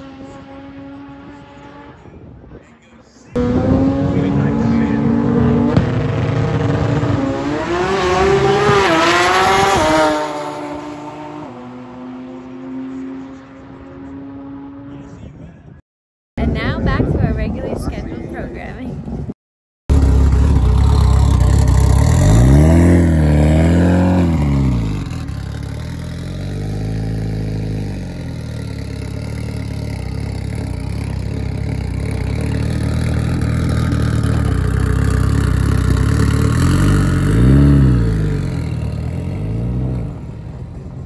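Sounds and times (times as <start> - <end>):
car engine idling roughly and revving: 19.9 - 22.9, 28.0 - 37.3.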